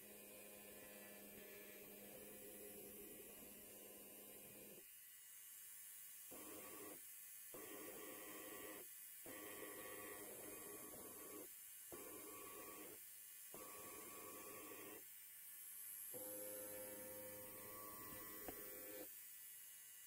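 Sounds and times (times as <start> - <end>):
faint electric hair clipper buzzing: 0.0 - 20.0.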